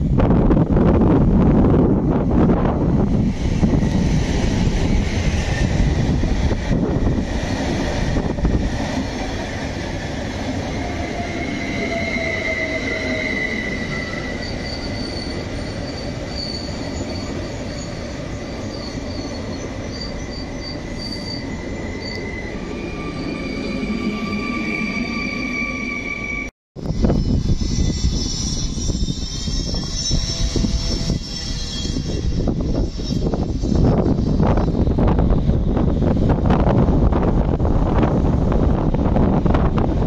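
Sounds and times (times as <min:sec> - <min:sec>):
train wheels rumbling on rails: 0:00.0 - 0:26.0, 0:26.8 - 0:40.0
brake and wheel squeal: 0:11.3 - 0:34.9.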